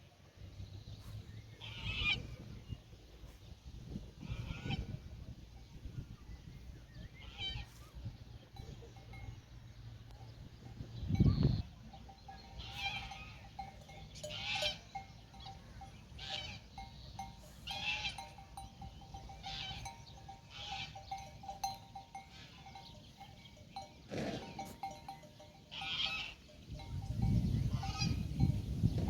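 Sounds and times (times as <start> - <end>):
livestock bells clanking: 8.4 - 29.0.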